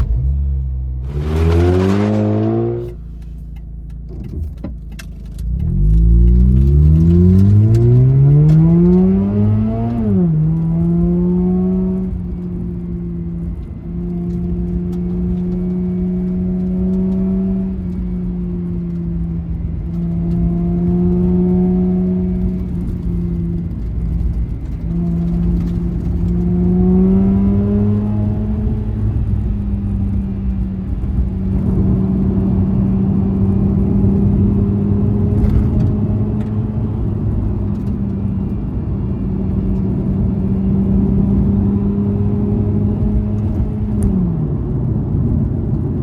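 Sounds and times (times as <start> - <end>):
rotary engine revving: 0.0 - 3.3, 5.4 - 12.1, 24.2 - 29.4.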